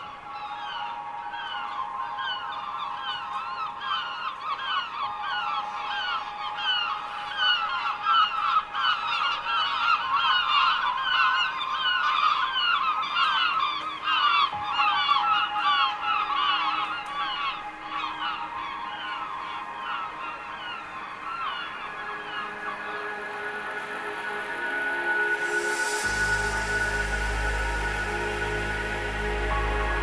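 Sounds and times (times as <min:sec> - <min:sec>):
flock of birds calling: 0:00.0 - 0:30.0
faint steady hum: 0:16.1 - 0:30.0.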